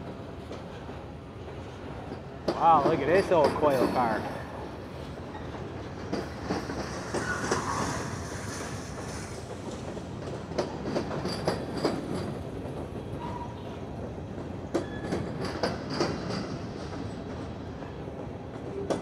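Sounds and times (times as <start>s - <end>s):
train wheels clattering over rail joints: 0.0s - 19.0s
high wheel squeals: 7.1s - 8.3s.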